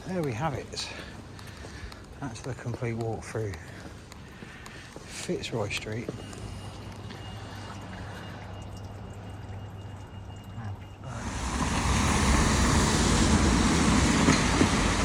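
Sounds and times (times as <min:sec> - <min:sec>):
quiet street background: 0:00.0 - 0:15.0
road traffic: 0:03.6 - 0:15.0
heavy rain: 0:11.1 - 0:15.0.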